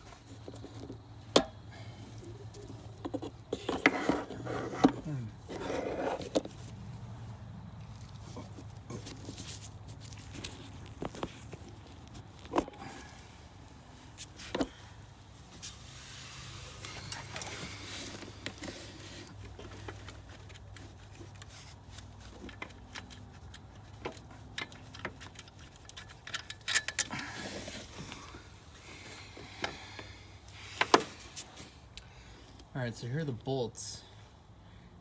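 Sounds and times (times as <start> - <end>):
metal tools clinking: 25.6 - 27.2.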